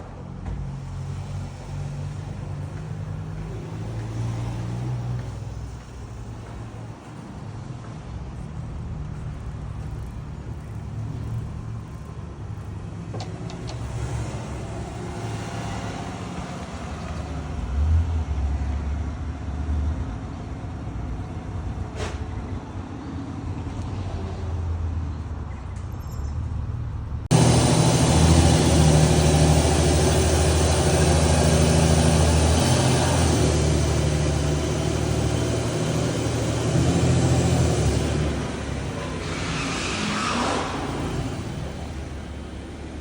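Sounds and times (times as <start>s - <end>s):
car engine running at low revs: 27.3s - 39.0s.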